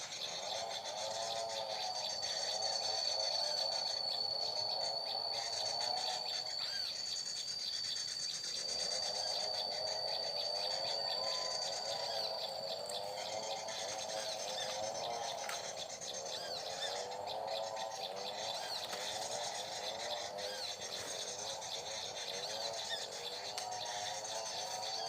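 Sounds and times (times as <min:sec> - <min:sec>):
high cricket-like trill: 0:00.0 - 0:25.0
low warbling insect chorus: 0:00.0 - 0:25.0.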